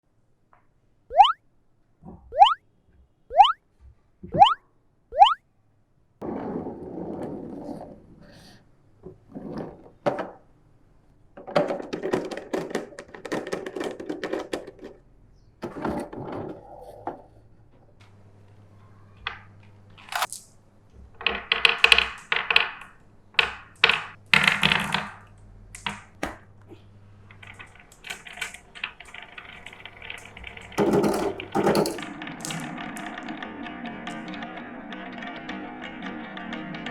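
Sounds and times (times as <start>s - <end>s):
marbles rolling on wooden track: 11.4s - 15.0s, 21.2s - 26.1s, 27.3s - 36.9s
music: 31.9s - 36.9s.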